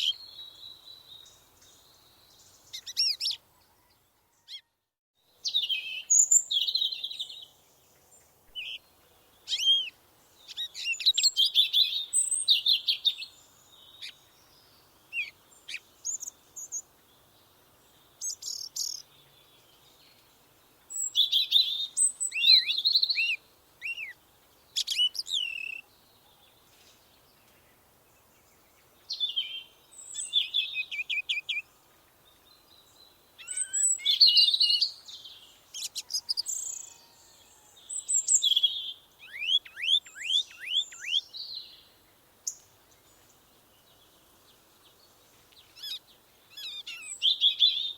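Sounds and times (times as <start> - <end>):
songbird chirping and whistling: 2.7 - 3.4, 9.5 - 13.3, 20.9 - 24.2, 24.8 - 25.8, 29.1 - 31.6, 33.4 - 37.2, 37.9 - 41.8, 45.7 - 47.9.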